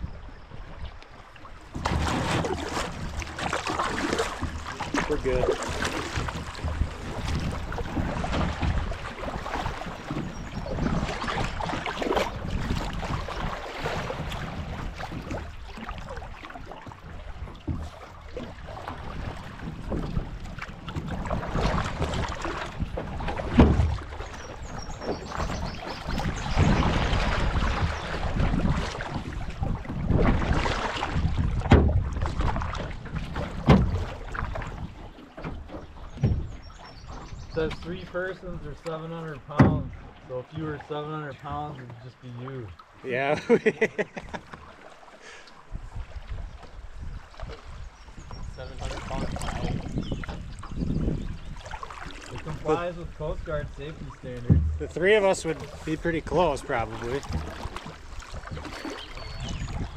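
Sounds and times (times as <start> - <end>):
water splashing around canoe: 0.0 - 59.9
wind noise on microphone: 1.8 - 35.1, 45.7 - 55.0, 57.2 - 59.9
sharp knocks: 54.4 - 55.0.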